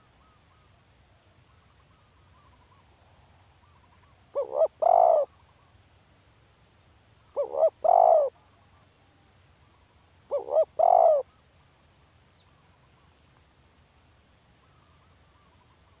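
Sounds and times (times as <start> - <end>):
dove cooing: 4.3 - 5.3, 7.4 - 8.6, 10.3 - 11.3.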